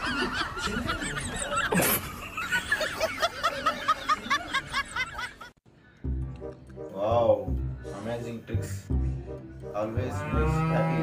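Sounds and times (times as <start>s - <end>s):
background music: 5.7s - 11.0s.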